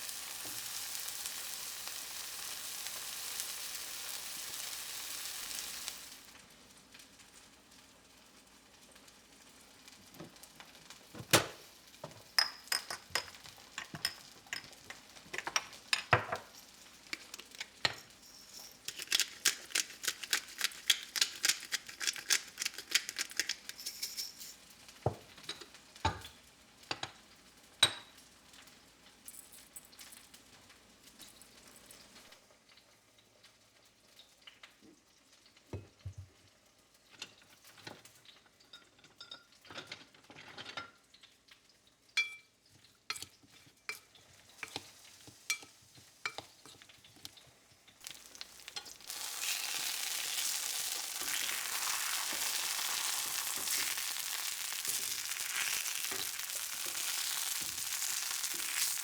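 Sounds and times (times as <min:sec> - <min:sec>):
steady hiss: 0:00.0 - 0:06.3
dishes and utensils clinking: 0:11.2 - 0:26.3, 0:38.7 - 0:41.0, 0:42.2 - 0:42.5, 0:43.1 - 0:47.4.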